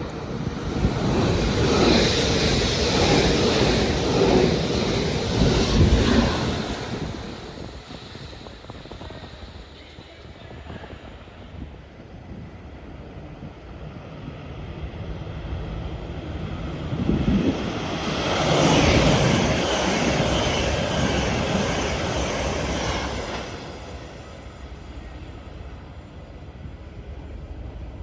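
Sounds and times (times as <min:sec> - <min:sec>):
train passing by: 0:00.0 - 0:28.0.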